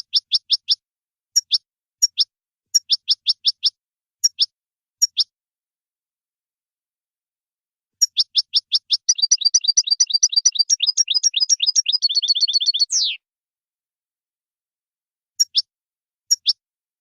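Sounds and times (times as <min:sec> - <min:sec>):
goldfinch singing high chirps: 0:08.0 - 0:13.2.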